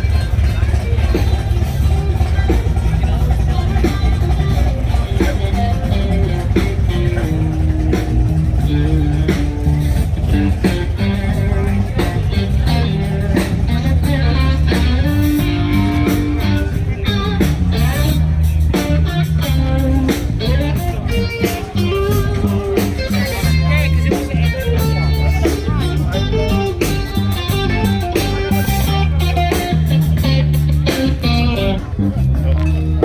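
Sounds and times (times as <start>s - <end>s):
bass guitar: 0.0s - 33.0s
drums playing a steady beat: 0.0s - 33.0s
electric guitar: 0.0s - 33.0s.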